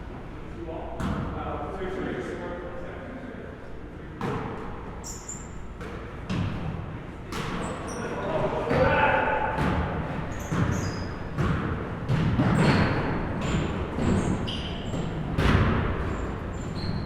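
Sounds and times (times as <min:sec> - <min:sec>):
sneaker squeaks: 0:04.2 - 0:06.7, 0:07.3 - 0:17.0
basketballs bouncing on wooden floor: 0:08.7 - 0:17.0.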